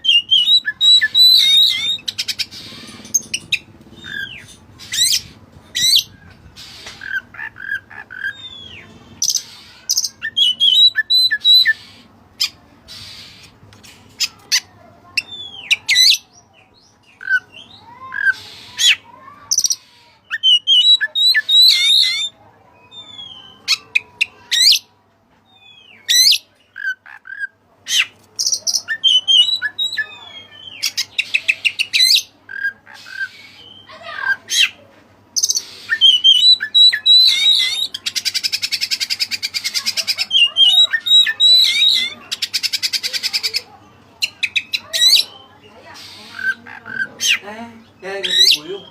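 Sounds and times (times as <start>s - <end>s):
bird singing varied whistled song: 0.0s - 2.4s, 8.3s - 11.8s, 20.3s - 23.8s, 28.4s - 32.2s, 33.4s - 33.9s, 35.4s - 39.7s, 40.4s - 42.9s.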